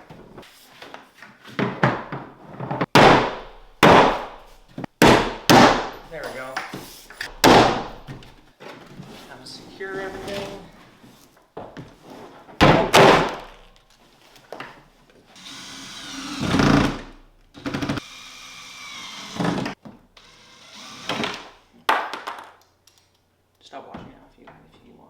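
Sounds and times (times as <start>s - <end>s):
power drill driving screws: 15.4s - 21.6s.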